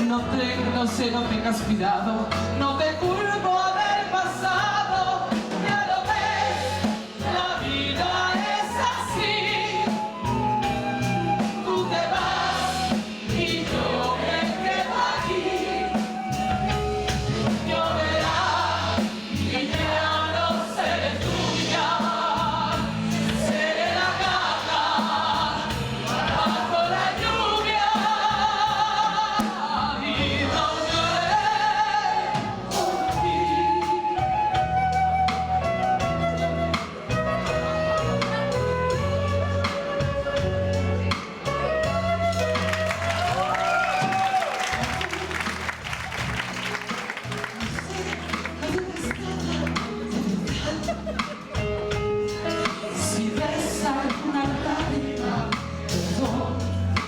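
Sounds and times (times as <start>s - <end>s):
band accompaniment: 0.0s - 57.0s
woman singing a ballad: 52.6s - 57.0s.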